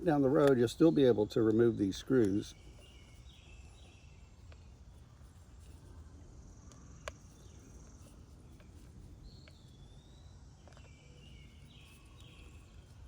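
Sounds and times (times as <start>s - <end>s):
birds chirping: 0.0s - 4.8s.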